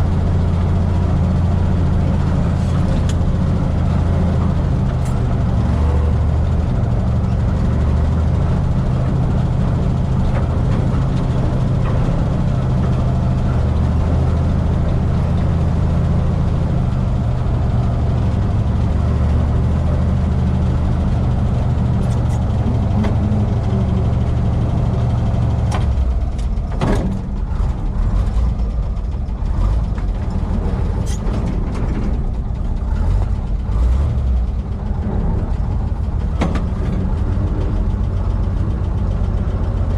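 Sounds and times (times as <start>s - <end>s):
truck engine running: 0.0s - 39.9s
uneven engine knocks: 25.0s - 38.9s.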